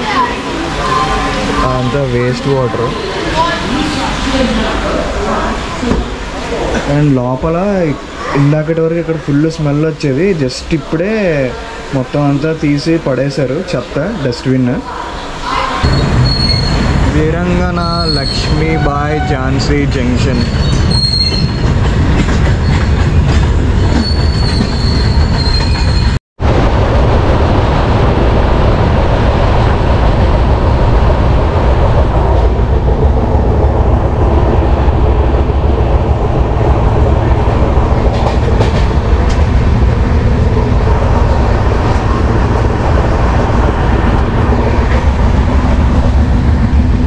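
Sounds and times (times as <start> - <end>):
train wheels rumbling on track: 0.0 - 47.0
high wheel squeal: 15.4 - 16.9, 17.8 - 19.6, 20.2 - 21.6, 23.9 - 26.2.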